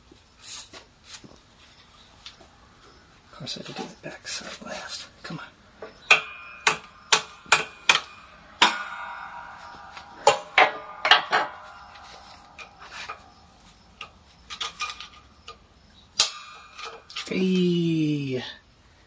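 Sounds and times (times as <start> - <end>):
hammer blows ringing on metal: 6.0 - 13.6.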